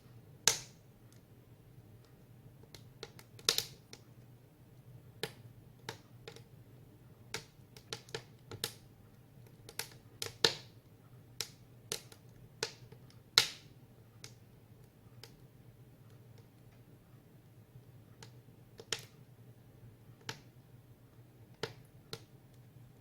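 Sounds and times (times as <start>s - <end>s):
firewood crackling and popping: 0.4s - 1.3s, 2.0s - 4.1s, 5.2s - 6.5s, 7.3s - 10.8s, 11.4s - 16.9s, 18.2s - 19.2s.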